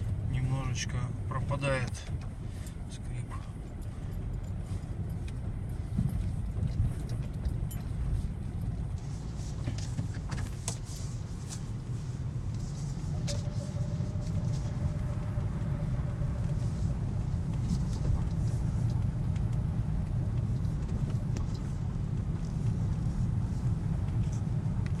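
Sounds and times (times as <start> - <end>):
car engine and road rumble: 0.0 - 25.0
faint thin squeal: 12.6 - 17.1.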